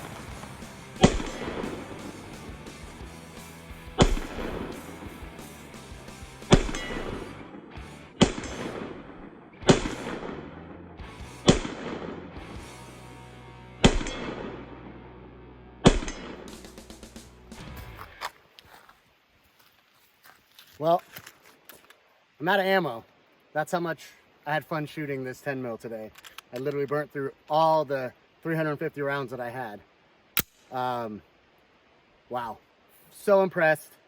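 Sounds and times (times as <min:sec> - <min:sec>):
pistol shots with echo: 0:01.0 - 0:01.8, 0:04.0 - 0:04.7, 0:06.5 - 0:07.5, 0:08.2 - 0:10.6, 0:11.4 - 0:12.2, 0:13.8 - 0:14.7, 0:15.8 - 0:16.5.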